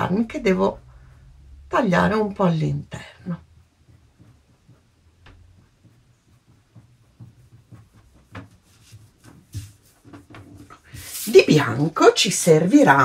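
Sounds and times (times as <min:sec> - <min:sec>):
pencil scratching on card: 0:03.6 - 0:11.4.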